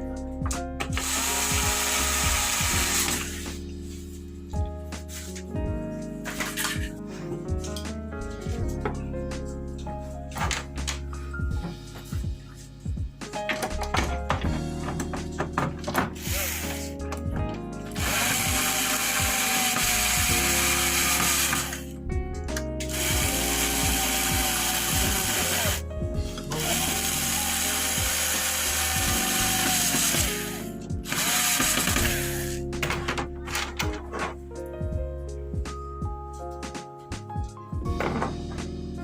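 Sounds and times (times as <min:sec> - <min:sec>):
background music: 0:00.0 - 0:39.0
cordless drill whining: 0:00.9 - 0:03.5, 0:16.2 - 0:16.8, 0:17.9 - 0:21.8, 0:22.9 - 0:25.8, 0:26.4 - 0:32.6.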